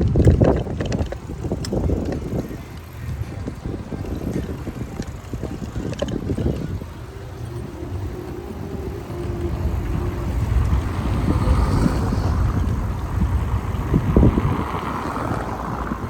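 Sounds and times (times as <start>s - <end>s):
city street traffic: 0.0s - 16.0s
wind rumbling on microphone: 0.0s - 16.0s.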